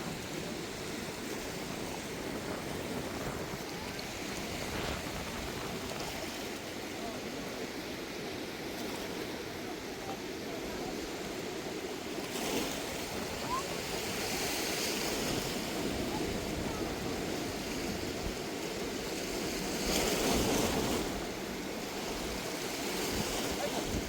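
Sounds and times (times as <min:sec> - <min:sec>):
flooded river rushing: 0:00.0 - 0:24.0.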